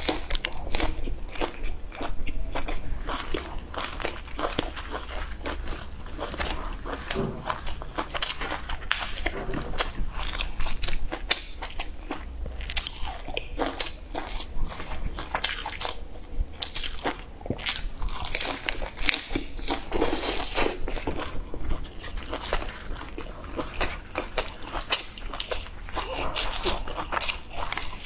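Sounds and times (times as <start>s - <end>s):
person biting and chewing crunchy food: 0.0s - 28.0s.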